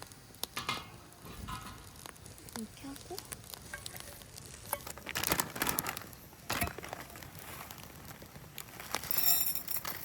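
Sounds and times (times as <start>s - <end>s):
cooking gear rustling and clicking: 3.7s - 10.0s.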